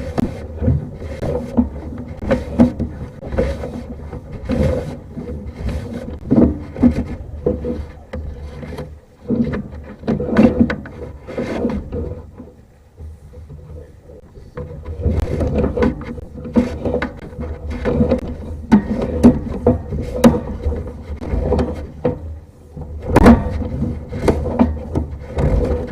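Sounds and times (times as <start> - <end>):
cable scraping through pipe: 0.0 - 25.9
equipment knocks and clunks: 14.5 - 25.9.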